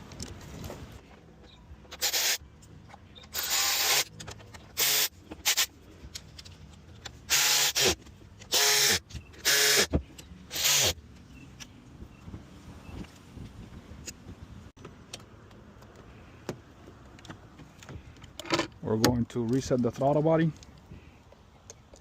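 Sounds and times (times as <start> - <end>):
power tool motor bursts: 2.0 - 2.4, 3.3 - 4.1, 4.8 - 5.7, 7.3 - 9.9, 10.5 - 11.0.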